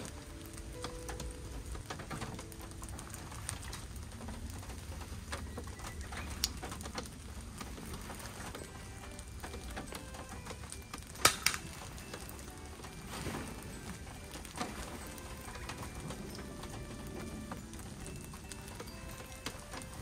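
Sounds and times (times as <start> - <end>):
rain dripping: 0.0 - 20.0
sharp clicks: 3.7 - 12.9.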